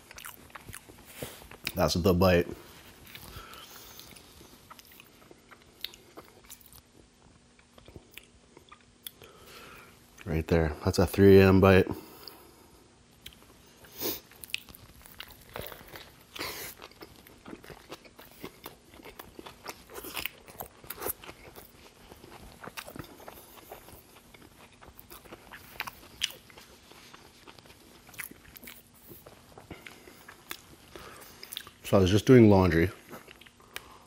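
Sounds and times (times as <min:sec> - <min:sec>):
wet chewing: 0:00.0 - 0:01.8, 0:02.8 - 0:06.9, 0:13.2 - 0:31.8.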